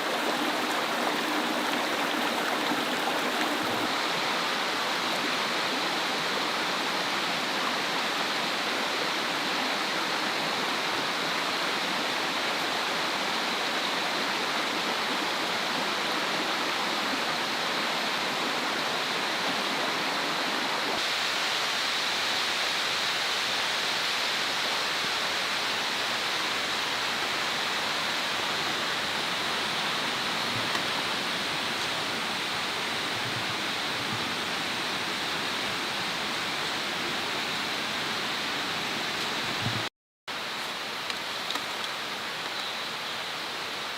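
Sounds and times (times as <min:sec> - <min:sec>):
steady rushing hiss: 0:00.0 - 0:14.6.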